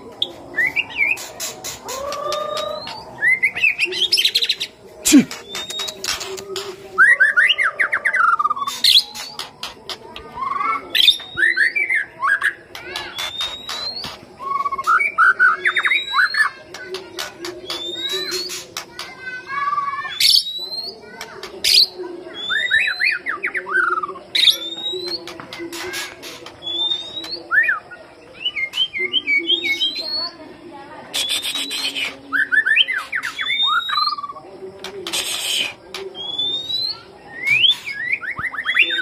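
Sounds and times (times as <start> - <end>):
harsh rasping bird notes: 0.2 - 23.2, 24.0 - 29.0, 31.1 - 39.0
bird singing whistles: 5.3 - 6.2, 10.3 - 16.6, 19.7 - 20.9, 21.7 - 25.3, 26.6 - 30.3, 31.1 - 34.4, 35.2 - 39.0.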